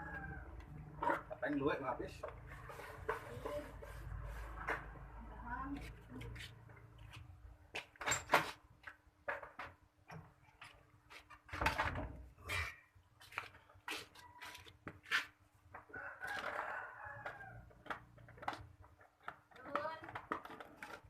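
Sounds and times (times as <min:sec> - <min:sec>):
rooster crowing: 0:00.0 - 0:00.6, 0:15.9 - 0:17.7
scattered clicks and knocks: 0:17.3 - 0:21.0.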